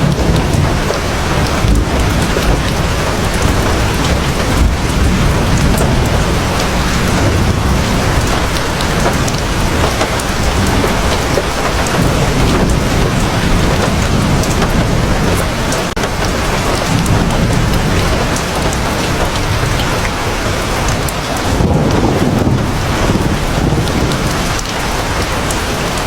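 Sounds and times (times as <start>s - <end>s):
low rumble: 0.0s - 19.8s
heavy rain pouring: 0.0s - 26.0s.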